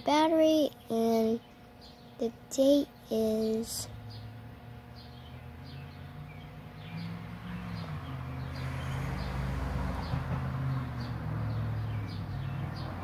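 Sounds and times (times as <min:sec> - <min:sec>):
bird chirping: 0:00.7 - 0:02.3, 0:03.3 - 0:13.0
low wavering motor hum: 0:03.8 - 0:10.1.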